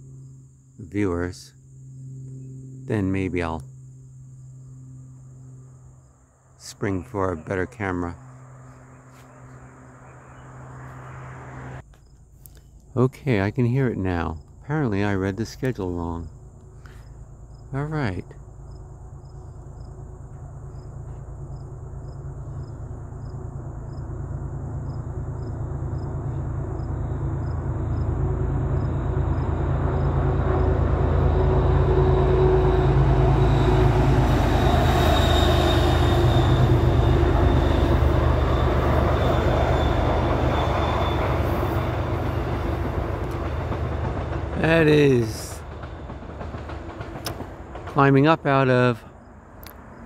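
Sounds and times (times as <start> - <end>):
thin high whine: 0.0 - 11.9, 14.8 - 42.9
crickets chirping: 0.0 - 50.0
train rumble: 12.7 - 50.0.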